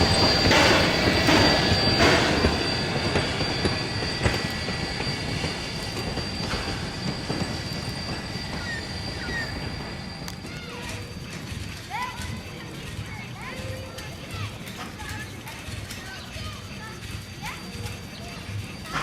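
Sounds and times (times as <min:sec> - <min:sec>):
thin high squeal: 0:00.0 - 0:19.0
train wheels and carriages rattling: 0:00.0 - 0:19.0.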